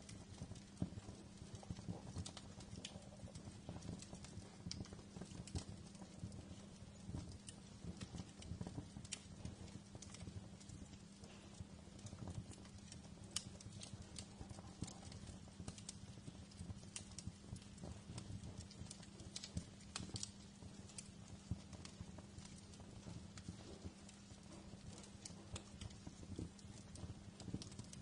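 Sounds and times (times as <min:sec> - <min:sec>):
fireplace fire crackling: 0:00.0 - 0:28.0
low fire rumble: 0:00.0 - 0:28.0.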